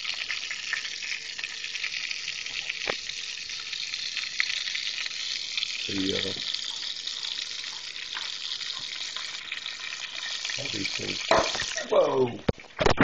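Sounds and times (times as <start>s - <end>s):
frying sizzle with pops: 0.0s - 13.0s.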